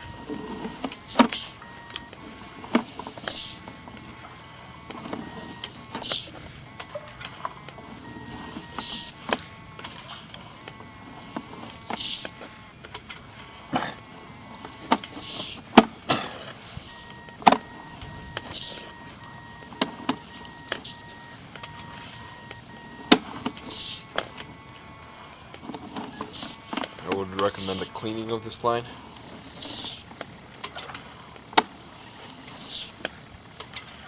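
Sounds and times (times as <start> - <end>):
faint steady tones: 0.0 - 34.0.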